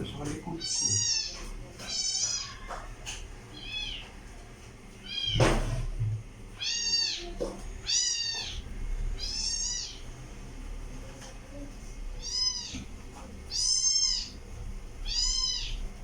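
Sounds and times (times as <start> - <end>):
kitten mewing: 0.6 - 2.8, 15.0 - 15.9.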